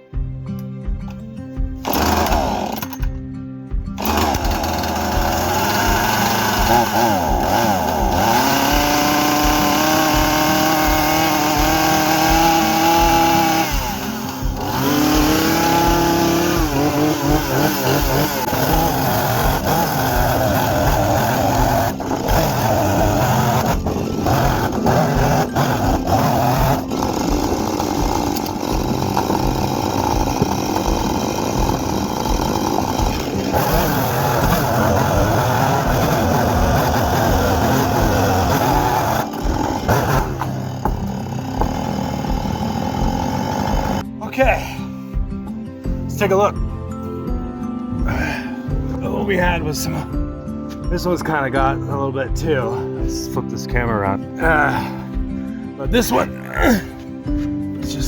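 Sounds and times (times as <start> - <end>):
chainsaw revving and cutting: 1.6 - 44.2, 54.4 - 58.0.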